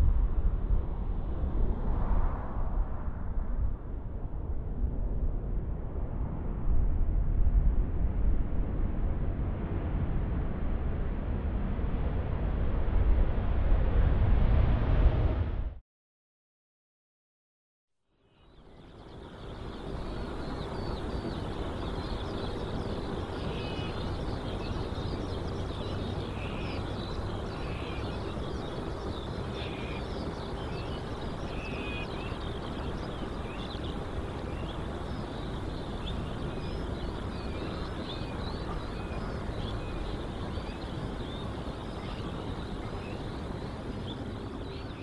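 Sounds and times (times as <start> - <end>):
low outdoor rumble: 0.0 - 15.8, 18.7 - 45.0
birds chirping: 18.4 - 45.0.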